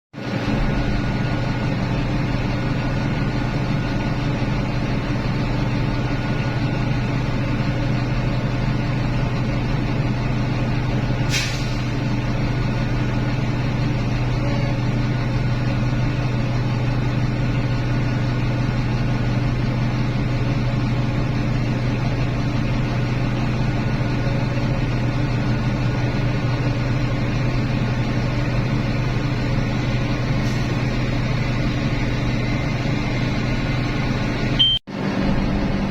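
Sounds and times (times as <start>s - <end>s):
diesel engine humming: 0.2s - 35.9s
short hiss: 11.3s - 11.9s.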